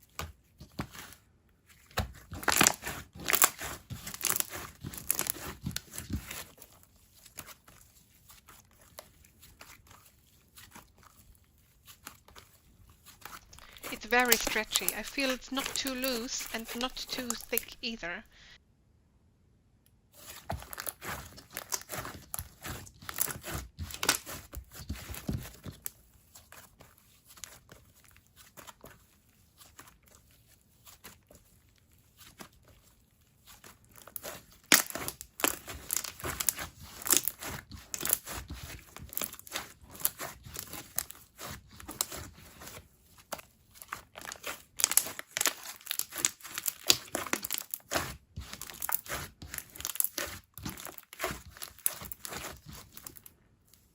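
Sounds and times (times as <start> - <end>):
slime crackling and popping: 1.9 - 17.7, 20.3 - 26.6, 33.4 - 53.3.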